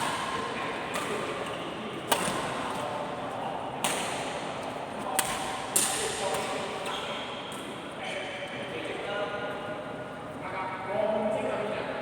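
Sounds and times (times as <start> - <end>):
badminton rackets hitting shuttlecock: 0.0 - 2.8, 3.8 - 4.4, 5.2 - 6.6.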